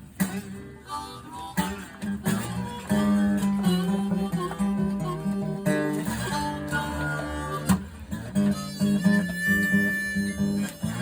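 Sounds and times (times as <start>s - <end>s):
acoustic blues guitar: 0.0s - 11.0s.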